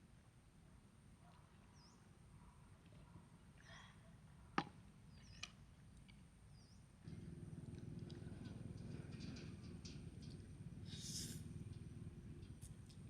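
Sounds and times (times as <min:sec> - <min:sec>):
low steady rumble: 0:07.1 - 0:13.0.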